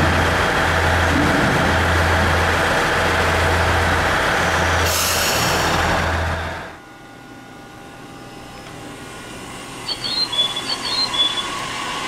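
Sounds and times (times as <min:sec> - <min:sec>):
electric train pulling away: 0:00.0 - 0:06.8, 0:09.2 - 0:12.0.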